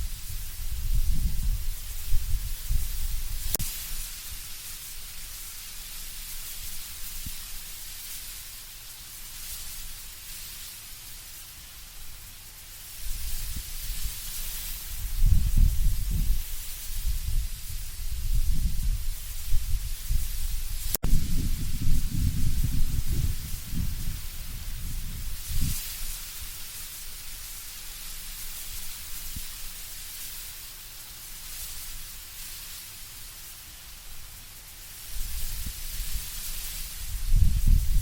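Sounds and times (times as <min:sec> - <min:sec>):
leaves rustling in wind: 0:00.0 - 0:38.0
deep gusty wind rumbles: 0:14.9 - 0:25.8.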